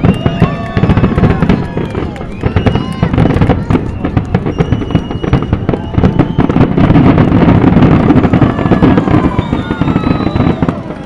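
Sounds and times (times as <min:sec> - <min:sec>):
fireworks bangs and crackles: 0:00.0 - 0:11.0
fireworks whistling: 0:00.0 - 0:11.0.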